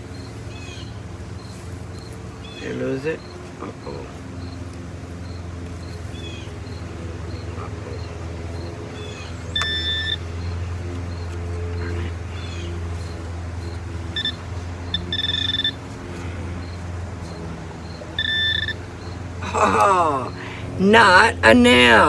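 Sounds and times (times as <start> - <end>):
steady low hum: 0.0 - 22.0
metal detector beeping: 9.4 - 12.0, 14.0 - 16.8, 17.9 - 19.2.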